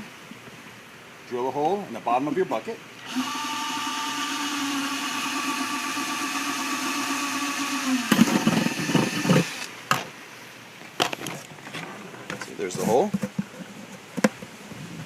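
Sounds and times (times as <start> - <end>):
electric drill boring plastic: 3.0 - 9.7.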